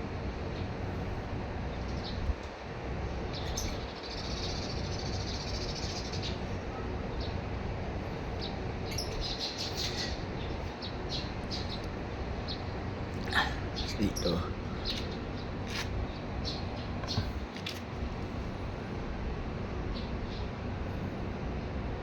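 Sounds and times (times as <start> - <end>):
small birds chirping: 1.6 - 18.4, 19.9 - 20.6.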